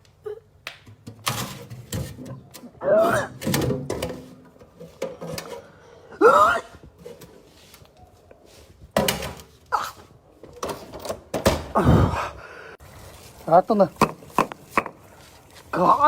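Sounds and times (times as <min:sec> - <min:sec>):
knocks and clatter of handling: 0:00.7 - 0:02.8, 0:03.4 - 0:05.8.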